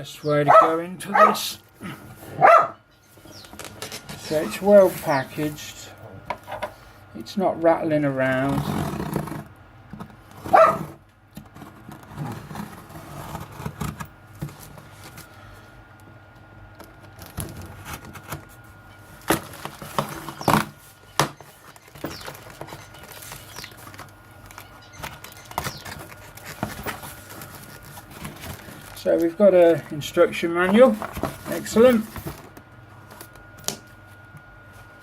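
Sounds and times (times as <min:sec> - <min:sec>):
cardboard box rustling: 0:10.4 - 0:15.3, 0:21.4 - 0:33.3.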